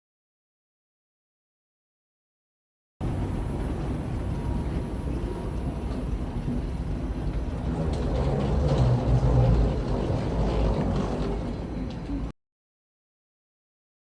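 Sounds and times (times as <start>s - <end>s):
jet cabin rumble: 3.0s - 12.3s.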